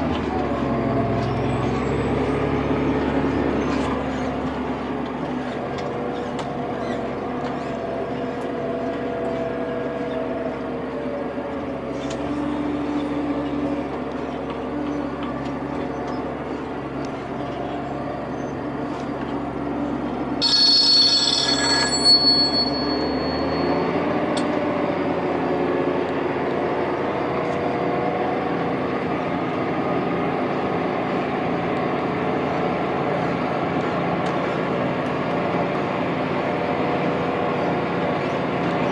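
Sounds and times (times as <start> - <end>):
tractor engine running under load: 0.0 - 38.9
high-pitched ringing: 20.4 - 25.3.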